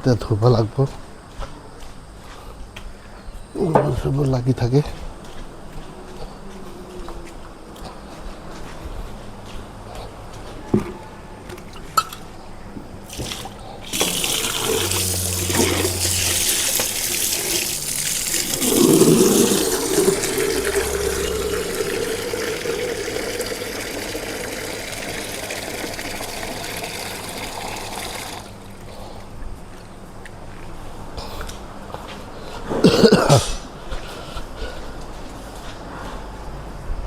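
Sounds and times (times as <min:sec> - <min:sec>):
water pouring and splashing: 0:13.1 - 0:28.6.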